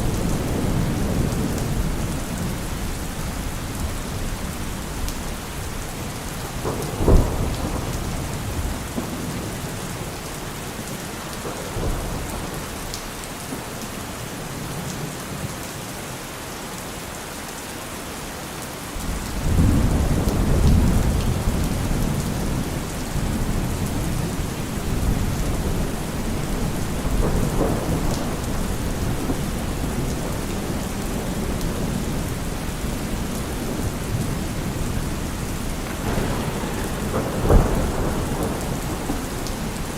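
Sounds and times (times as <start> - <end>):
low thunder rumble: 0.0 - 12.9, 19.0 - 39.9
rain falling on trees: 0.0 - 39.9
thunder crack: 6.6 - 9.7, 19.4 - 39.9.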